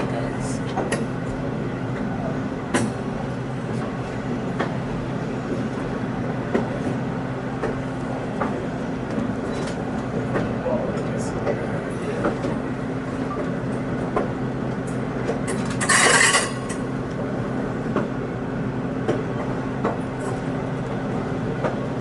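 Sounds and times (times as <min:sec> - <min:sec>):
train hum from aboard: 0:00.0 - 0:22.0.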